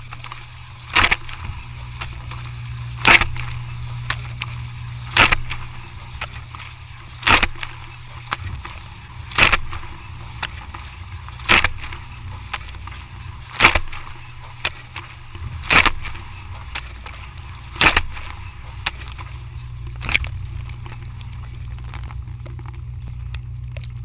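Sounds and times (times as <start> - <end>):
dishwasher humming: 0.0 - 24.0
small clicks: 0.0 - 24.0.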